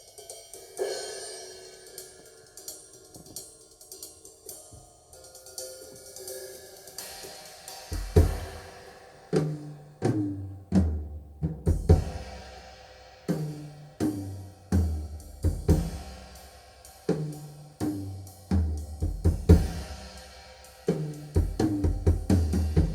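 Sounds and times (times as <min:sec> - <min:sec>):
drum-led music over loudspeakers: 0:02.5 - 0:08.7, 0:09.3 - 0:12.5, 0:13.3 - 0:16.3, 0:17.0 - 0:20.1, 0:20.8 - 0:22.9.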